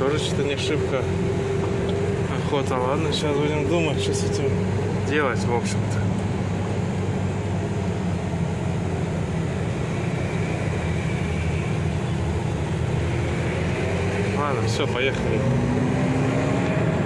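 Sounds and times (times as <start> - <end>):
diesel truck engine droning: 0.0 - 17.0.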